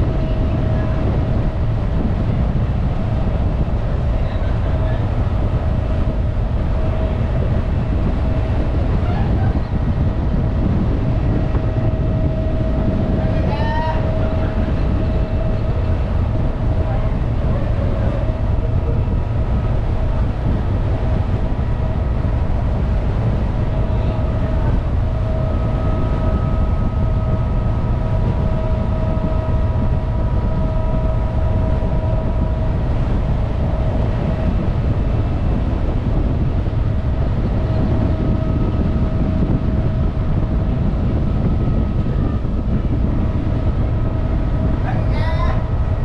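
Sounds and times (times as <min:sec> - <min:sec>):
ship engine low rumble: 0:00.0 - 0:46.0
faint whining tones: 0:23.2 - 0:35.7.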